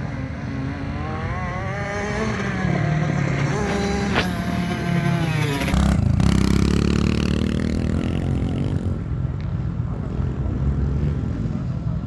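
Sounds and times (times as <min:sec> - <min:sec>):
motorbike passing by: 0:00.0 - 0:12.0
motocross engine revving: 0:00.5 - 0:08.7.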